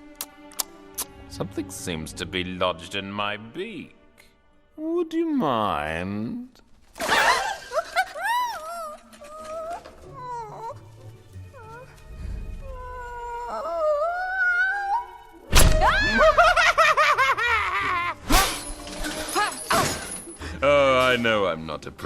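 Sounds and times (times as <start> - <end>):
shrill warbling cries: 7.0 - 19.9
cartoon bird squealing: 12.7 - 16.6.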